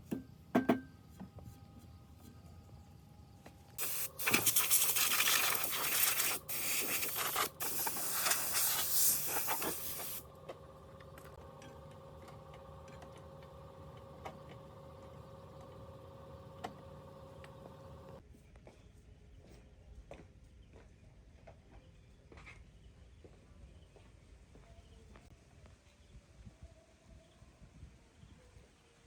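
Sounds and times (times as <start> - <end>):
faint steady hum: 0.0 - 18.2
loud hissing spray: 3.8 - 10.2
clicks: 7.1 - 18.2.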